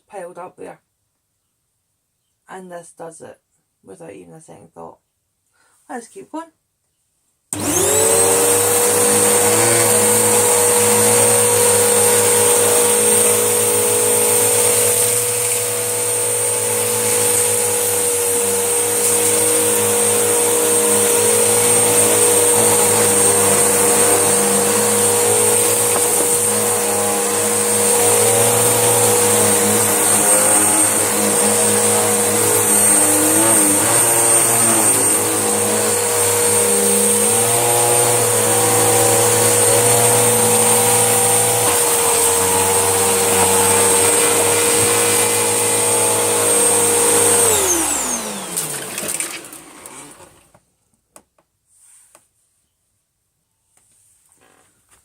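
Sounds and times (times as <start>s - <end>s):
vacuum cleaner motor whine: 7.6s - 50.6s.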